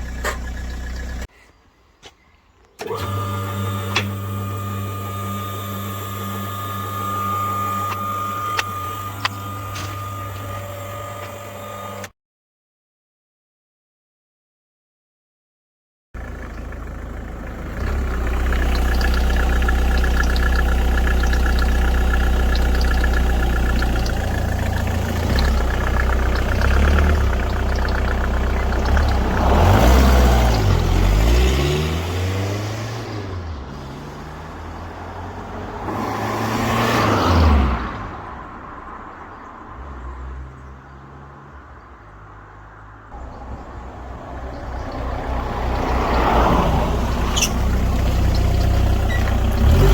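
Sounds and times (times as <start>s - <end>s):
diesel engine idling and revving: 0.0s - 1.3s, 2.8s - 12.1s, 16.2s - 49.9s.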